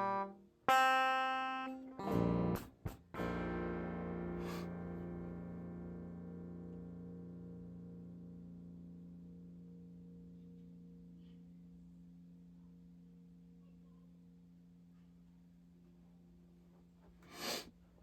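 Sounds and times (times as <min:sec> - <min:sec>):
noisy scrape: 0:17.2 - 0:17.7.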